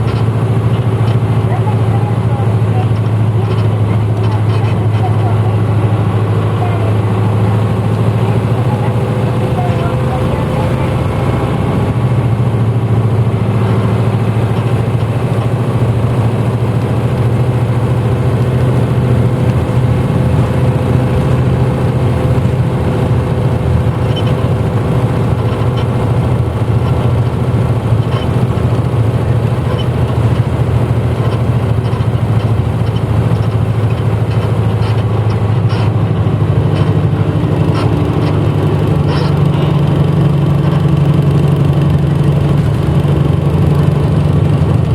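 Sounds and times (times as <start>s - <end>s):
bus diesel engine droning: 0.0s - 44.9s.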